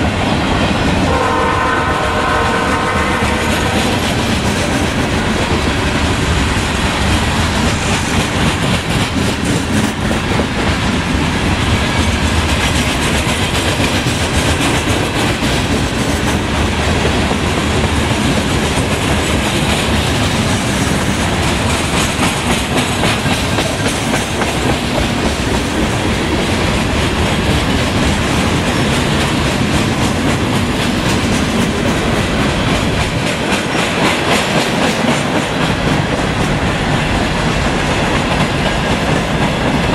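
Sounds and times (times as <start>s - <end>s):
train wheels rolling on rails: 0.0s - 39.9s
rapid rail clicking: 3.2s - 39.9s.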